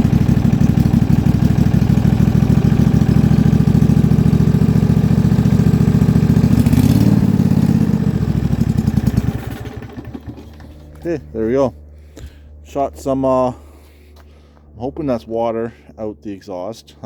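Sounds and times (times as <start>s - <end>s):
lawn tractor engine running: 0.0s - 11.7s.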